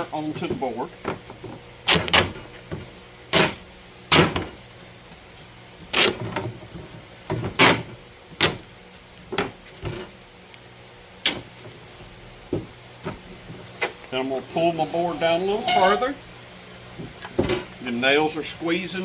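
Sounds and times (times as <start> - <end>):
duct tape ripping off roll: 1.8 - 2.4, 5.9 - 6.4, 7.6 - 8.6.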